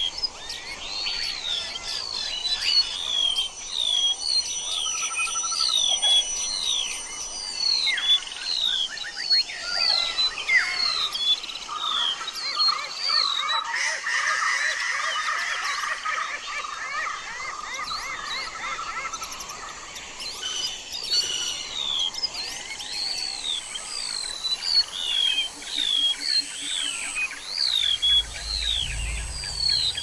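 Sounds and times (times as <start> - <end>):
birds chirping and singing: 23.4 - 30.0.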